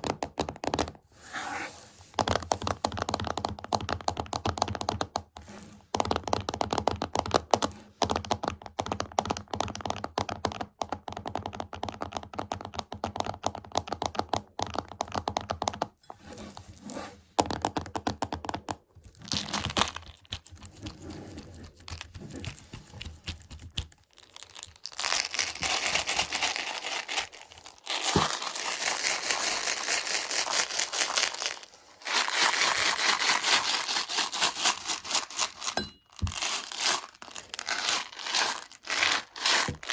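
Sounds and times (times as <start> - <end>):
crinkling rustle: 19.4 - 39.9.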